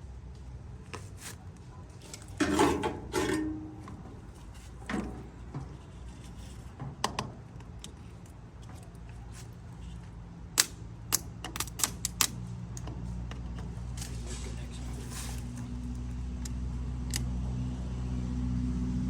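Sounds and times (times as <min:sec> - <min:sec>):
metallic clicks of hand tools: 0:10.6 - 0:12.9.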